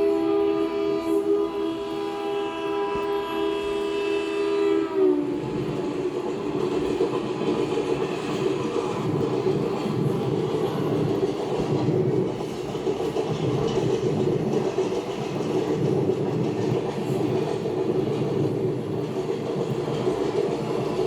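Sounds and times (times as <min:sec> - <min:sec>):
locomotive horn: 0:00.0 - 0:05.8
train rumbling: 0:00.0 - 0:21.0
wheels clacking over rail joints: 0:05.6 - 0:21.0.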